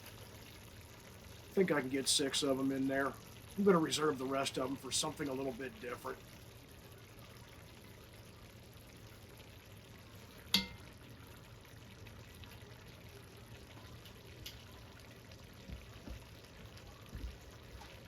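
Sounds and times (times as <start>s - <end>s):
pot sizzling and simmering: 0.0s - 18.0s
sharp metallic clink: 10.6s - 10.8s.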